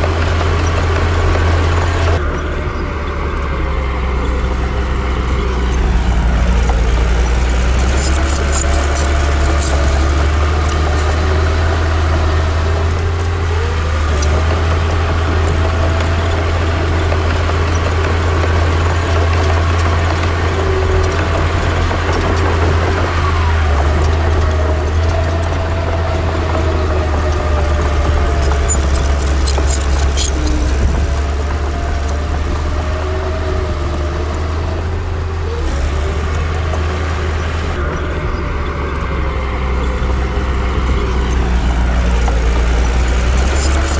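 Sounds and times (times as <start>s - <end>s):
heavy diesel machinery drone: 0.0s - 43.9s
sharp metal clanks: 5.4s - 11.5s.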